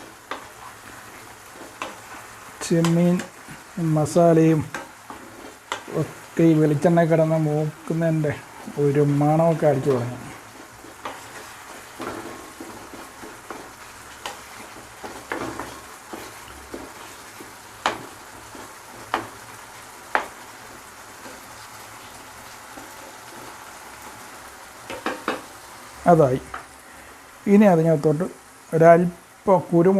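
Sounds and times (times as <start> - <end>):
spoon knocking and scraping a pan: 0.0 - 3.7, 4.6 - 7.2, 7.8 - 23.6, 24.8 - 25.5
prawns sizzling in a pan: 0.0 - 29.9.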